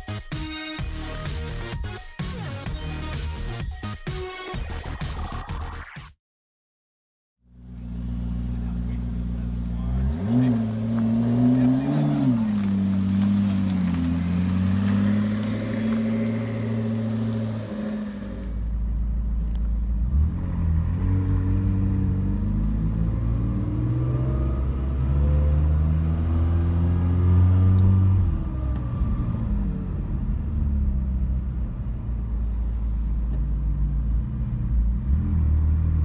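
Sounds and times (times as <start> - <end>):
car engine running: 7.5 - 20.2, 27.7 - 36.0.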